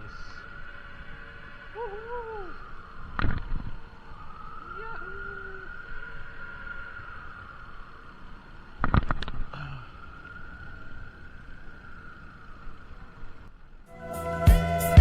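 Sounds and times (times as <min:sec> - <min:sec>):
faint steady whine: 0:00.0 - 0:14.0
wind and road noise: 0:00.0 - 0:14.1
music with strong drum hits: 0:14.4 - 0:15.0.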